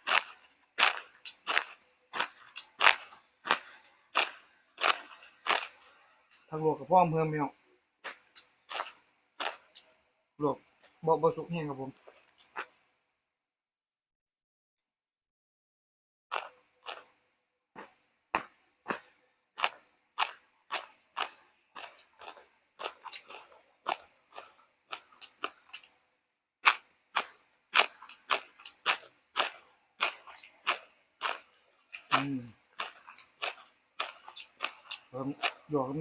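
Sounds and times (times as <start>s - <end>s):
chewing crunchy food: 0.0s - 6.6s, 8.0s - 10.0s, 10.6s - 11.0s, 11.8s - 13.0s, 16.3s - 17.2s, 17.8s - 26.0s, 26.6s - 36.0s.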